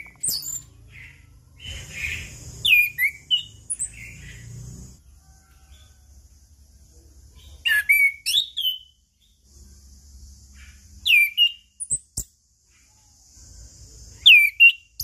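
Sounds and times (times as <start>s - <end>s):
thrush singing whistled phrases: 1.6s - 4.5s, 7.7s - 9.0s, 11.0s - 12.2s, 14.2s - 15.0s.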